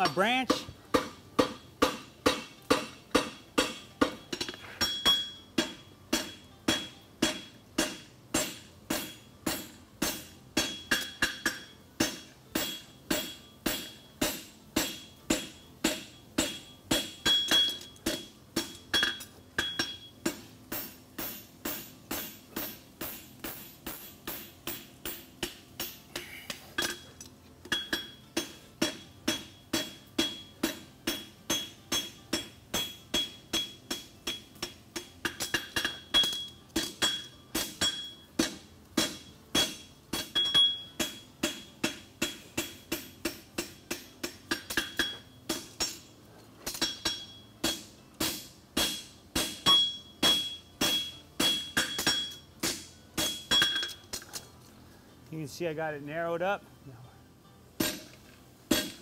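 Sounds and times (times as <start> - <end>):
anvil ringing: 0.0 - 46.1, 46.7 - 54.2, 57.8 - 59.0
hammer striking horseshoe on anvil: 0.0 - 54.5, 57.8 - 59.0.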